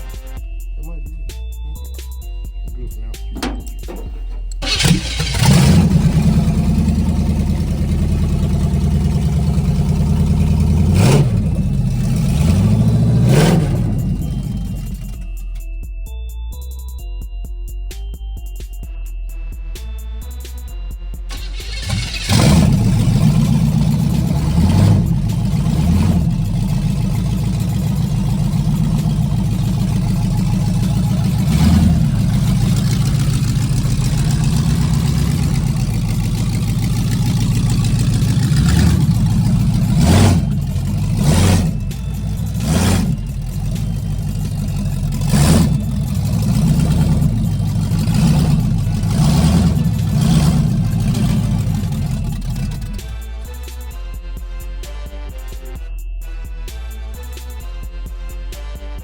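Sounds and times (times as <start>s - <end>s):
car engine revving: 3.4s - 15.6s, 21.3s - 53.1s.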